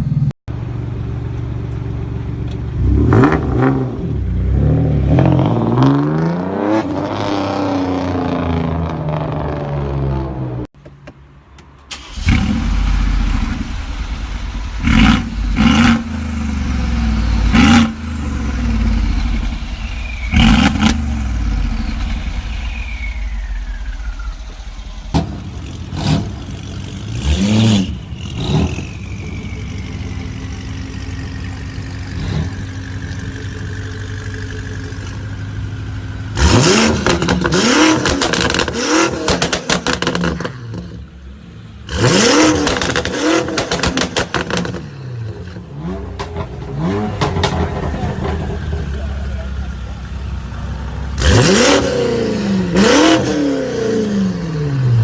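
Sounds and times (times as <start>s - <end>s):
supercar engine revving: 2.7s - 10.7s, 12.0s - 55.0s
exhaust popping and crackling: 11.9s - 27.3s, 27.9s - 41.0s, 41.9s - 50.6s.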